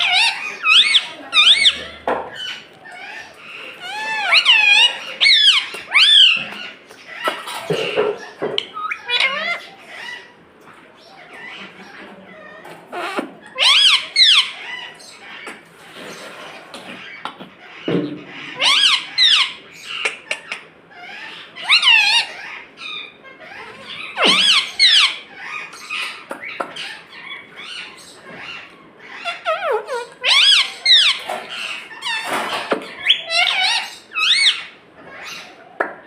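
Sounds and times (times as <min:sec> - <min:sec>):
parrot squeaky calls: 0:00.0 - 0:10.4, 0:11.0 - 0:35.6.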